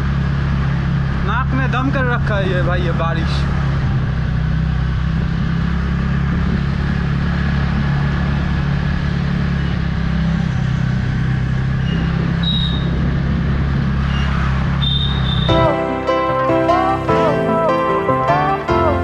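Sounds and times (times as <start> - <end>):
motorcycle engine drone: 0.0 - 19.0
wind noise on microphone: 2.0 - 9.1, 9.7 - 15.6.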